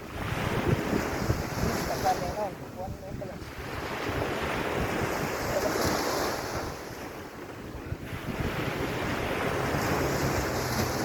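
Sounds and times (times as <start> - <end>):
sea waves washing onto beach: 0.0 - 11.0
wind buffeting microphone: 0.0 - 11.0.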